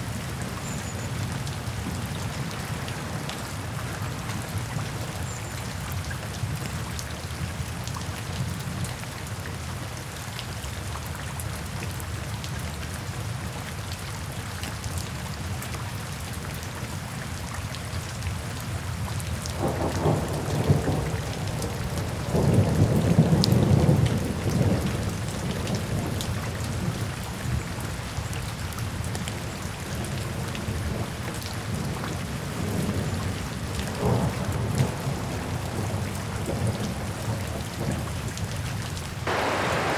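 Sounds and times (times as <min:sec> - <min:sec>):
steady rain falling: 0:00.0 - 0:39.9
thunder rumbling: 0:39.3 - 0:39.9.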